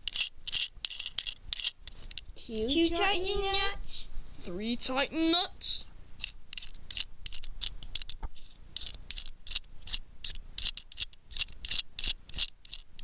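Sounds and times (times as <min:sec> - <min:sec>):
nut threads scraping on bolt: 0:00.0 - 0:02.3, 0:06.2 - 0:13.0.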